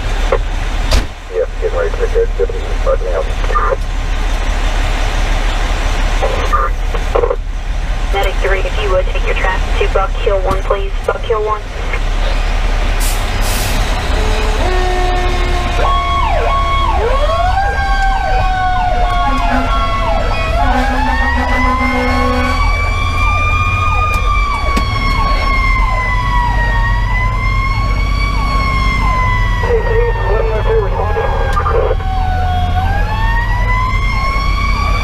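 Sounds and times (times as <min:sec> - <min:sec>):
diesel truck engine rumble: 0:00.0 - 0:35.0
electronic siren sweeping: 0:13.8 - 0:35.0.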